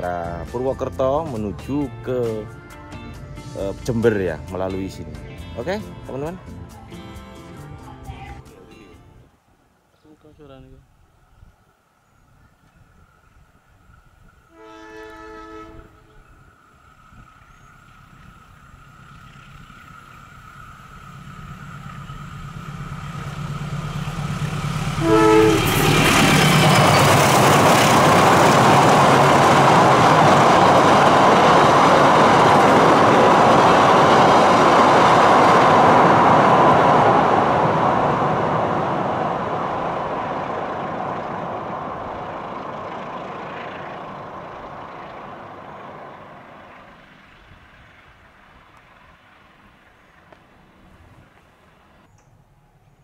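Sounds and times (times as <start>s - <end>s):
train rumbling across a steel bridge: 12.4s - 52.1s
locomotive engine drone: 12.9s - 53.0s
short horn blast: 14.5s - 16.4s, 24.9s - 26.3s.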